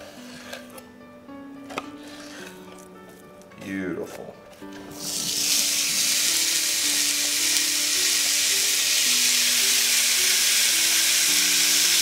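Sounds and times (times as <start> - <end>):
fish sizzling on a griddle: 4.9 - 12.0.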